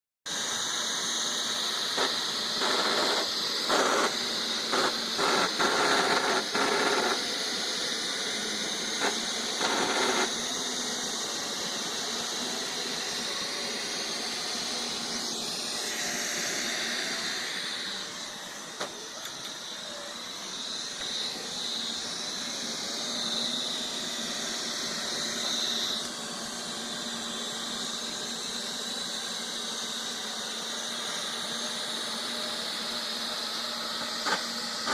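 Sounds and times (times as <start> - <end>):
robot vacuum whining: 0.3 - 34.9
loud grinding bursts: 0.6 - 18.5.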